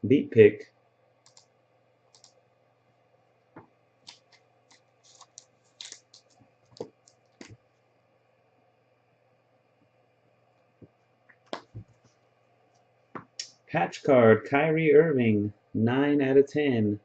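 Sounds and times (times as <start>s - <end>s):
cards clicking and tapping: 3.6s - 7.6s.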